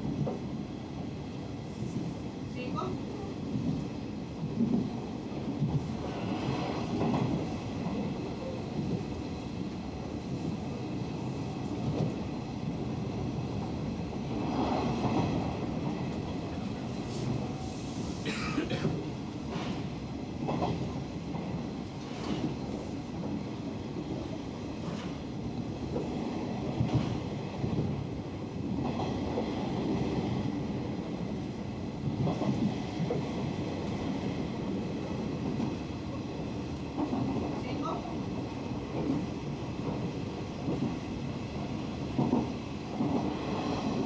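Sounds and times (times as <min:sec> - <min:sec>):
train wheels rumbling on rail: 0:00.0 - 0:44.0.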